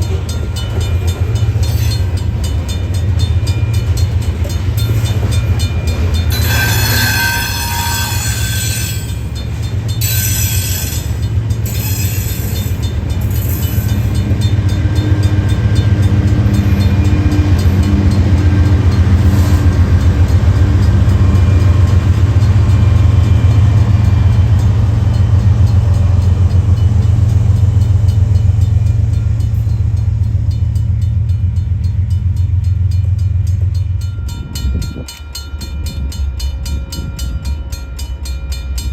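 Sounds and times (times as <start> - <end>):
freight train rumbling past: 0.0 - 38.9
metallic wheel squeal: 6.3 - 9.4, 10.0 - 14.2.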